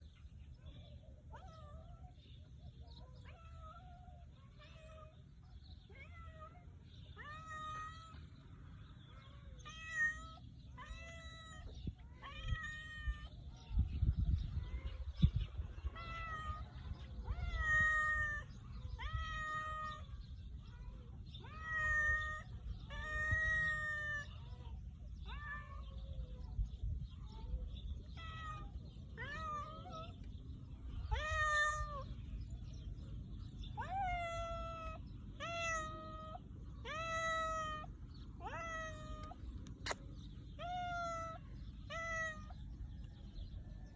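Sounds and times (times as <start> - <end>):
cat meowing: 15.9 - 20.0, 21.4 - 24.3, 31.1 - 32.1, 33.8 - 40.0.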